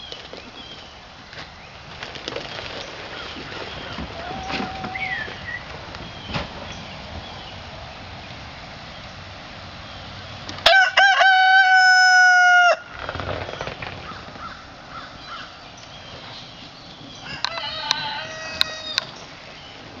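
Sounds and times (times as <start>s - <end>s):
rooster crowing: 10.6s - 12.9s, 17.2s - 19.3s.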